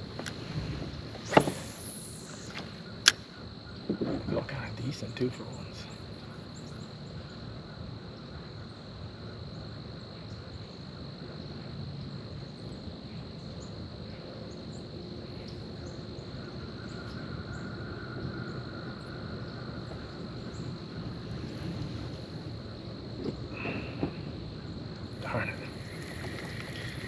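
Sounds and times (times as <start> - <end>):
water noise: 0.0 - 3.2, 25.1 - 27.0
insect chorus: 0.0 - 27.0
wind: 0.0 - 27.0.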